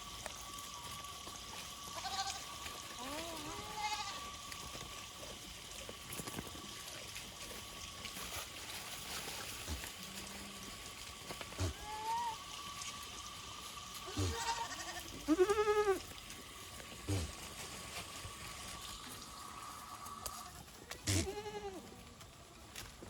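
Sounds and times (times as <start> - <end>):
goats bleating: 1.9 - 4.5, 11.6 - 12.4, 14.0 - 16.1, 20.2 - 22.1.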